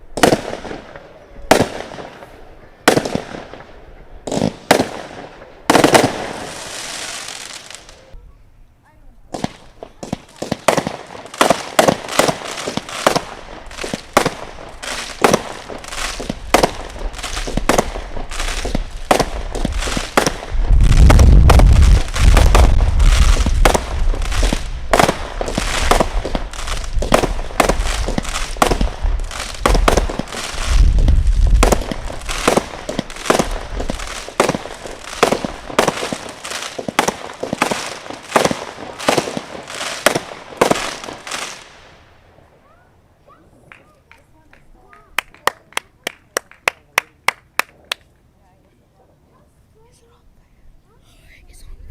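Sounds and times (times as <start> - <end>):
fireworks rapid sharp bangs: 0.1 - 7.9, 9.3 - 41.8
deep firework booms: 2.9 - 7.0, 9.4 - 41.4.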